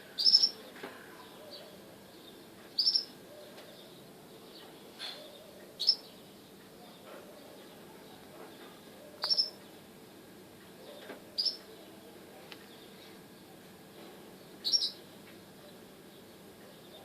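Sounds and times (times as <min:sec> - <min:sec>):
bird chirping: 0:00.2 - 0:09.8, 0:10.8 - 0:12.0, 0:14.4 - 0:17.0.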